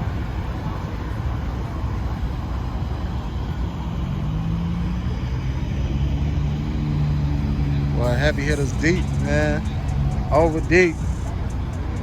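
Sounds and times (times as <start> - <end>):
car engines idling: 0.0 - 12.0
deeper engine note: 3.7 - 12.0.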